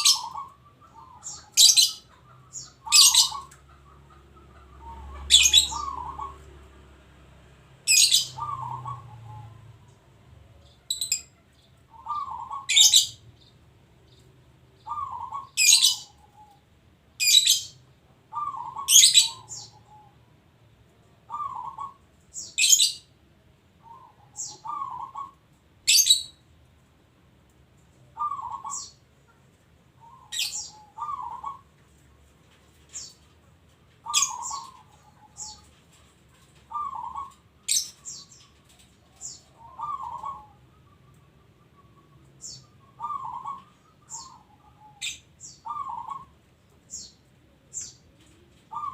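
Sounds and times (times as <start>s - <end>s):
dove cooing: 0.0s - 7.1s, 7.9s - 11.3s, 11.9s - 13.2s, 14.8s - 16.6s, 18.3s - 20.2s, 21.2s - 22.9s, 23.8s - 26.2s, 28.1s - 29.4s, 30.0s - 31.8s, 34.0s - 48.9s.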